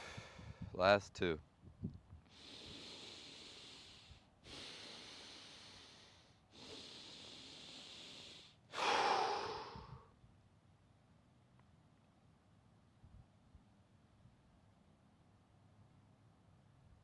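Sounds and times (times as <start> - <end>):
person breathing deeply: 0.0 - 0.7, 2.3 - 10.1.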